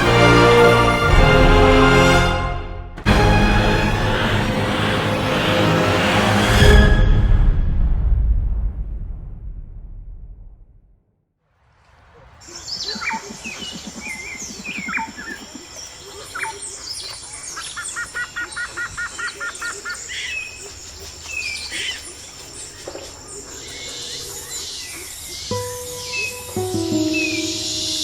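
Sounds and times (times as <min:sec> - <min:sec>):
birds chirping and whistling: 0:12.4 - 0:28.0
bird giving run of even notes: 0:25.5 - 0:28.0.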